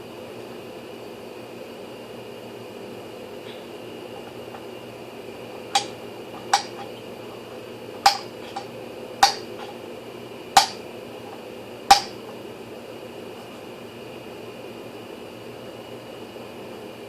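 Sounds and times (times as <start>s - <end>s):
faint steady hum: 0.0s - 17.0s
hard objects clicking: 5.6s - 7.0s, 8.0s - 9.8s, 10.6s - 12.2s.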